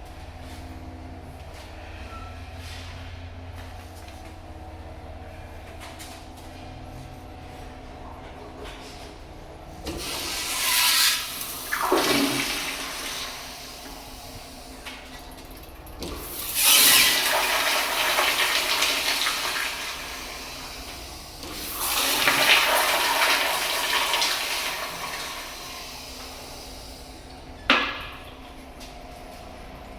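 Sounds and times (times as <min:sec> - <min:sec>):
toilet flushing: 0:09.8 - 0:28.8.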